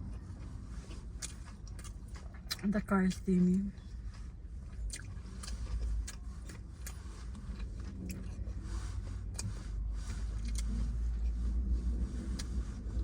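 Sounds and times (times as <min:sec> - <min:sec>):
mouth clicks and lip smacks chewing: 0:00.0 - 0:03.8, 0:04.7 - 0:08.6, 0:09.3 - 0:10.9
low rumble inside car: 0:00.0 - 0:13.0.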